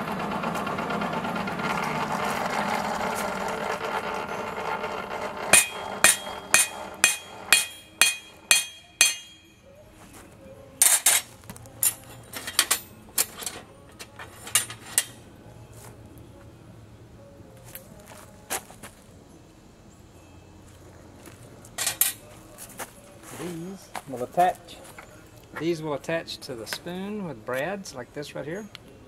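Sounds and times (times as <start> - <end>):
hammer striking anvil: 5.5 - 9.6.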